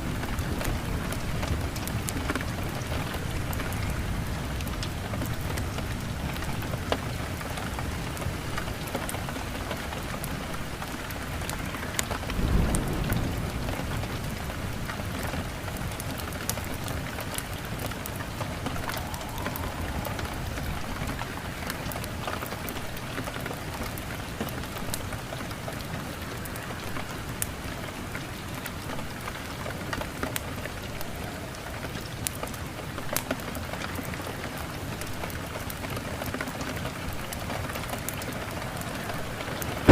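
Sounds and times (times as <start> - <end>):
heavy rain: 0.0 - 39.9
low thunder roll: 12.3 - 15.1, 16.6 - 22.4
sharp crackles: 36.9 - 39.9.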